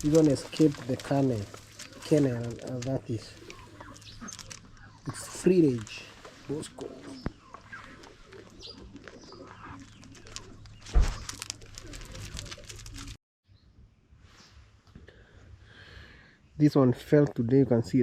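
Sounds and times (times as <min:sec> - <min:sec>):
doves cooing: 0:00.0 - 0:13.2.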